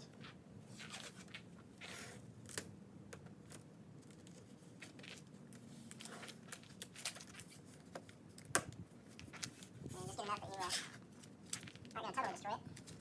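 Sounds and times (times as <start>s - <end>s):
tape tearing off roll: 0.8s - 2.7s
tape clicks and crinkles: 0.8s - 13.0s.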